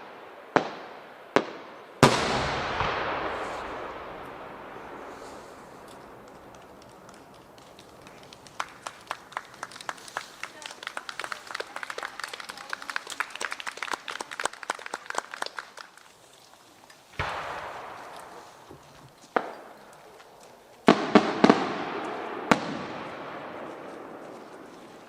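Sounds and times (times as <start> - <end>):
firework booms with echo: 0.0 - 9.2, 17.2 - 20.0, 20.8 - 25.0
rapid small firework pops: 0.0 - 16.2, 16.9 - 25.0.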